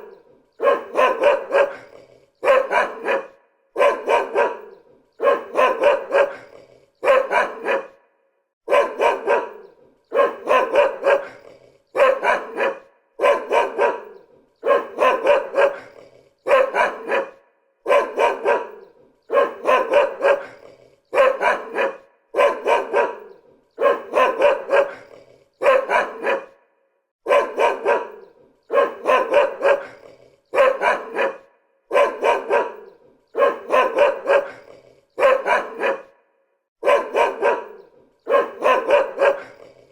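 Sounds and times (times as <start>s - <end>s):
dog barking: 0.0s - 39.9s.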